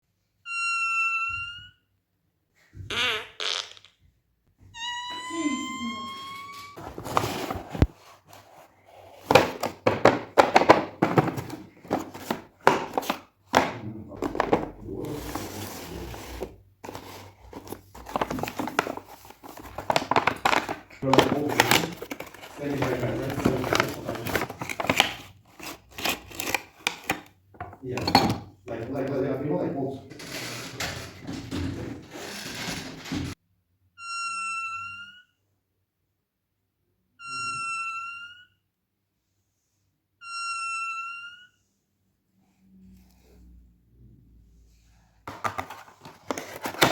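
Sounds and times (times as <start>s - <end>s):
high whistle-like squeak: 0.5s - 1.8s
packaging rustling: 6.8s - 27.3s, 45.3s - 46.9s.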